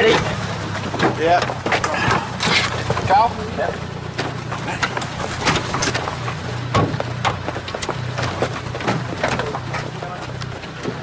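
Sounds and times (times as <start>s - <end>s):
car engine humming: 0.0s - 11.0s
sharp clicks and knocks: 4.2s - 11.0s.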